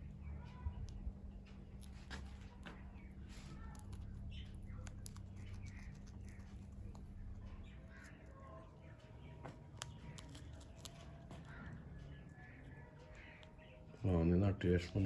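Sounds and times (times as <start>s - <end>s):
small clicks: 9.6s - 11.8s.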